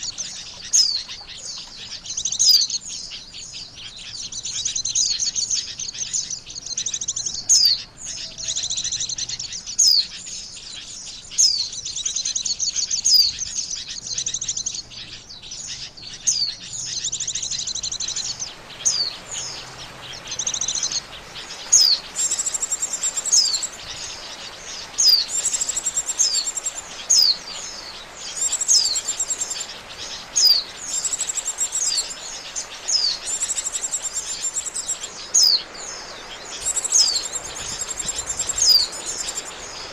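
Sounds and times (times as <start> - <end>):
bird chirping warbles and whistles: 0.0 - 39.9
steady hiss: 16.6 - 39.9.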